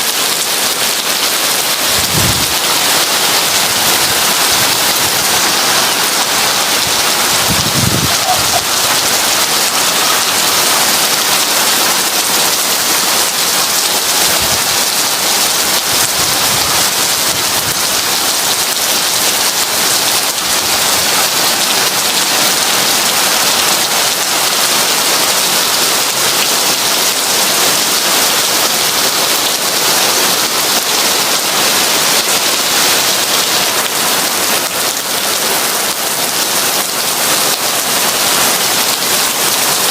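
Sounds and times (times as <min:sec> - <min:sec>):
heavy rain: 0:00.0 - 0:39.9
thunder rumble: 0:01.9 - 0:09.2.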